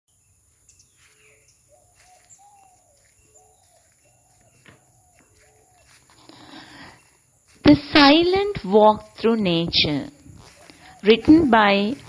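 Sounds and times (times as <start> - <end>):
bird calls: 0.6 - 7.7, 10.1 - 12.0.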